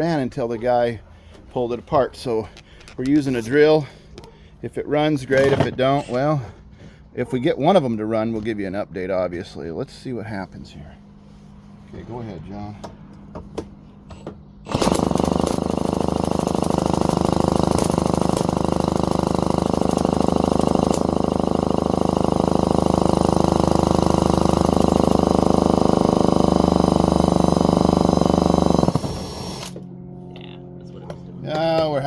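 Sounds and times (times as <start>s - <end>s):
electric drill whining: 14.6s - 29.9s.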